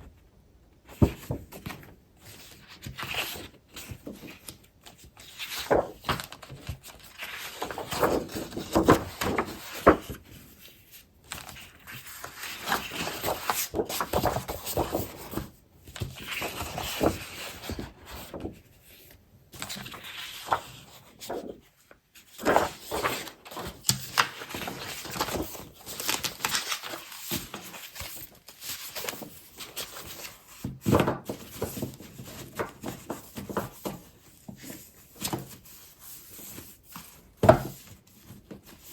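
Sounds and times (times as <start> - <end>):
paper rustling and crinkling: 1.0 - 38.9.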